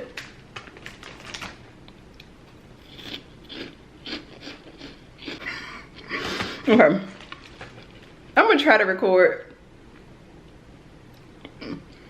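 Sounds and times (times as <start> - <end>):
person chewing crunchy chips: 0.1 - 5.6.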